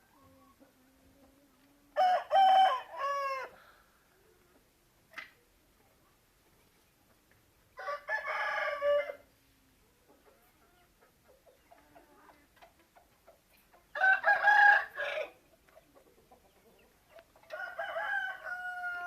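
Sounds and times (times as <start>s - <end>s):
rooster crowing: 2.0s - 3.6s, 7.8s - 9.2s, 14.0s - 15.3s, 17.5s - 19.0s.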